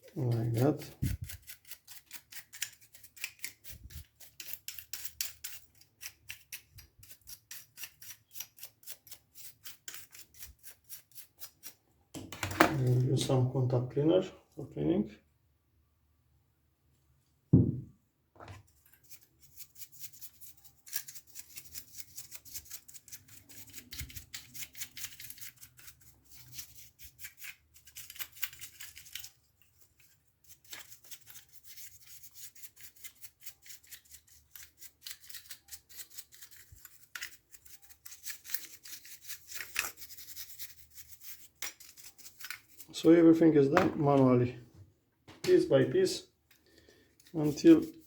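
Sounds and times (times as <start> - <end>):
loud thump: 17.5 - 17.9.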